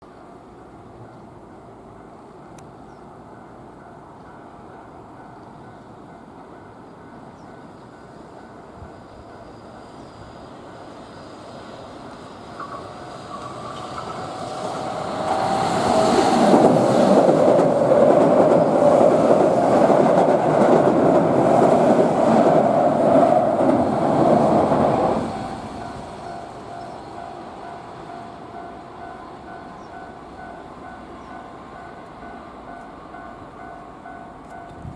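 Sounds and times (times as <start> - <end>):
electric train rumble: 0.2 - 34.9
train wheel clatter: 12.1 - 27.9.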